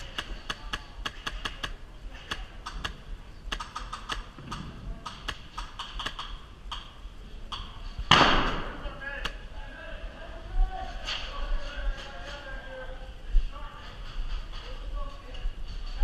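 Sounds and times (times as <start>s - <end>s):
airsoft gunfire: 8.1s - 8.8s.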